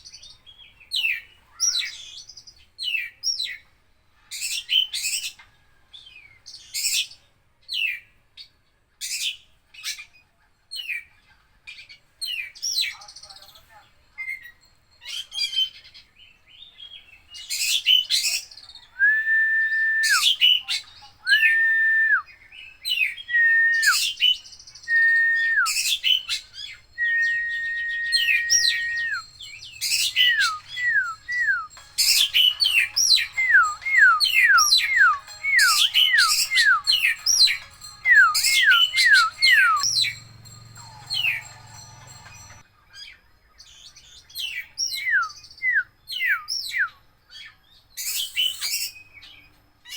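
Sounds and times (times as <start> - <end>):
songbird singing whistles: 16.5 - 41.6, 44.3 - 47.0, 48.0 - 49.9.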